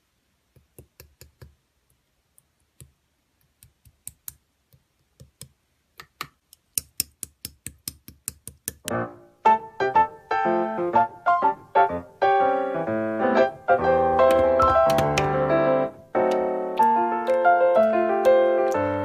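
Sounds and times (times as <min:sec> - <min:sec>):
piano-like keyboard music: 0:08.8 - 0:19.0
sharp clicks: 0:16.2 - 0:19.0.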